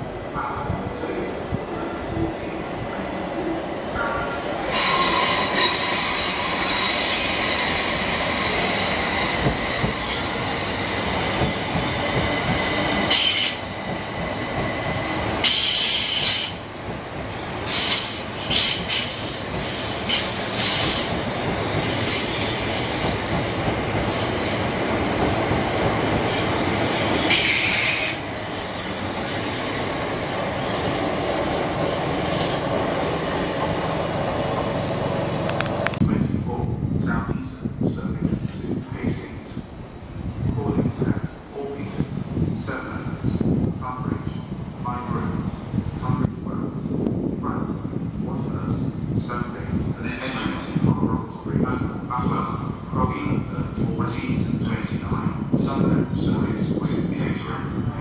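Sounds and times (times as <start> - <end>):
train running rumble: 1.5 - 58.0
hissing screeches: 4.7 - 11.8, 13.1 - 13.7, 15.4 - 16.6, 26.6 - 29.0
train wheels squealing: 4.7 - 16.6.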